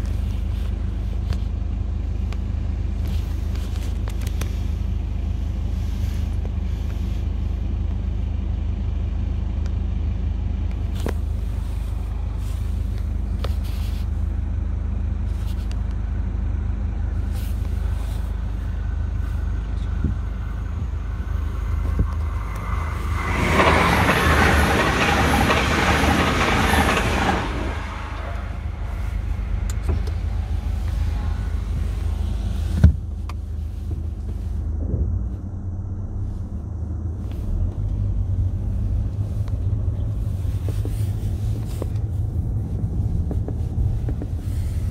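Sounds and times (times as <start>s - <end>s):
low idling hum: 0.0s - 44.9s
train rushing past: 18.8s - 32.8s.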